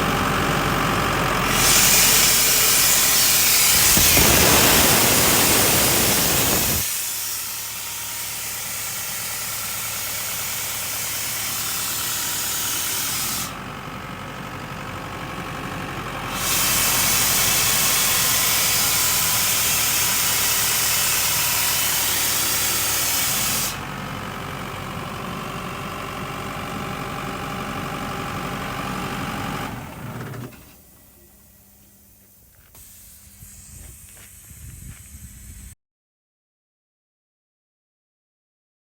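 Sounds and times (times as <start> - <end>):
air compressor engine hum: 1.4 - 14.5, 30.5 - 35.7
compressed air hissing: 1.6 - 7.6, 31.8 - 35.7.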